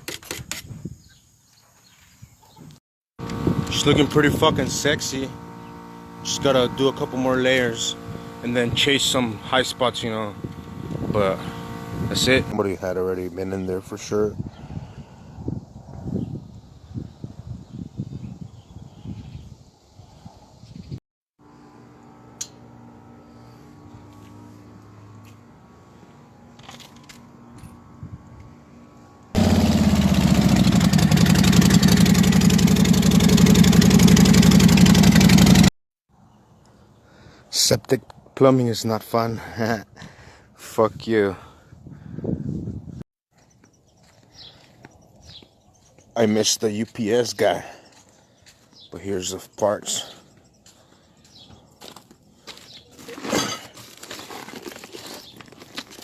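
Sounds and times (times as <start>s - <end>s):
truck engine idling: 3.2s - 12.5s, 29.4s - 35.6s
packaging rustling: 52.6s - 56.0s.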